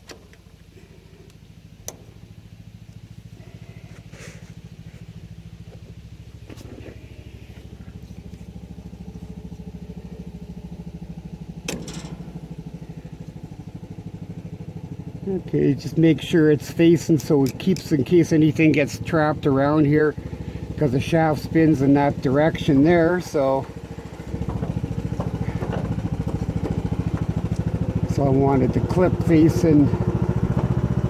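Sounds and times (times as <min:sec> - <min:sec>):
engine idling: 0:00.0 - 0:31.0
sharp metallic clicks: 0:11.6 - 0:12.7, 0:17.0 - 0:18.0.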